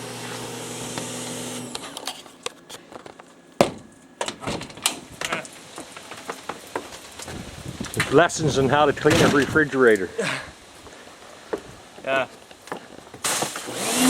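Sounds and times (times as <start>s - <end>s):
clicks knocks and clatter: 2.9s - 8.2s
sharp bang: 3.6s - 4.7s.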